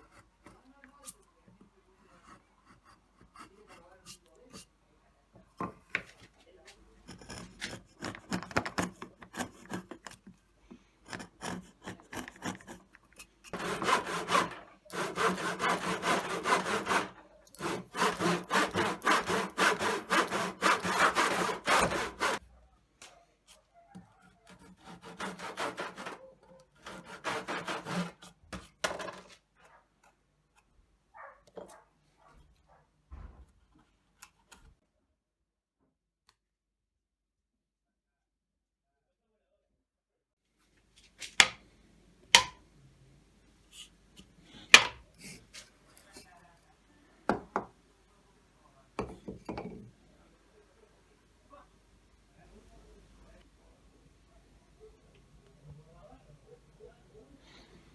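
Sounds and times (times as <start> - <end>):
hand saw cutting wood: 7.1 - 10.2, 11.1 - 22.4, 24.5 - 29.1.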